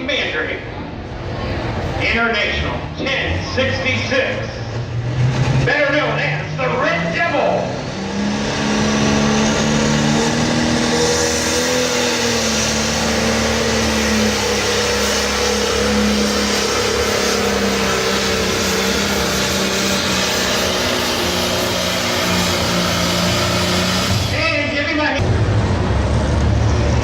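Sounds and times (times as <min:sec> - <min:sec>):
exhaust and turbo noise: 0:00.6 - 0:27.0
tractor engine under heavy load: 0:00.6 - 0:27.0.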